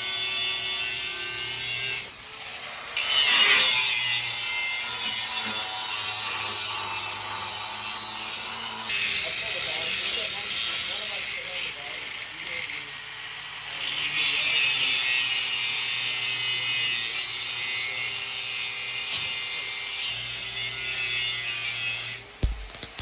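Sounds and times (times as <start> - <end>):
power tool rasping: 22.4 - 23.0.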